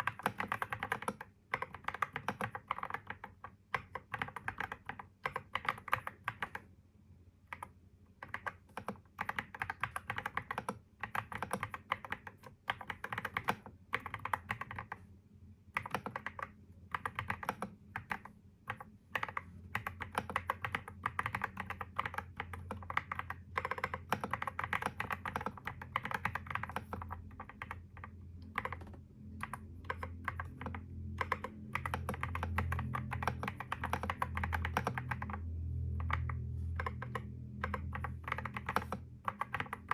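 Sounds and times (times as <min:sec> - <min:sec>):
typing on computer keyboard: 0:00.0 - 0:06.7, 0:07.5 - 0:15.0, 0:15.7 - 0:39.9
low hum: 0:34.3 - 0:38.6.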